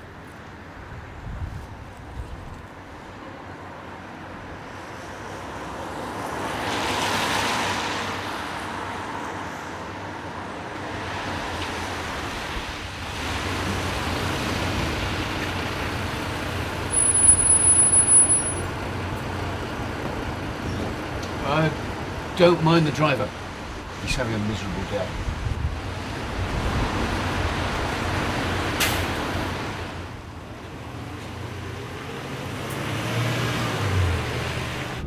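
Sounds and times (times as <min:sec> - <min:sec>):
bus engine: 0:00.0 - 0:35.0
vehicle swishing past on wet road: 0:05.4 - 0:09.2, 0:31.4 - 0:35.0
bus brakes squealing: 0:16.9 - 0:18.7.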